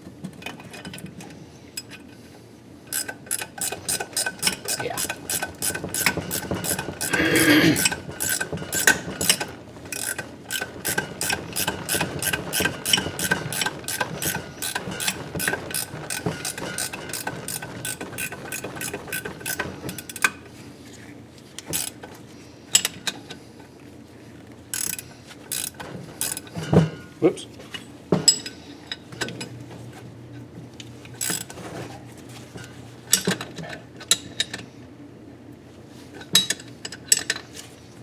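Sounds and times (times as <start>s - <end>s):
ratchet wrench clicking: 2.9s - 20.4s, 21.7s - 22.0s, 24.7s - 26.5s, 31.2s - 31.5s.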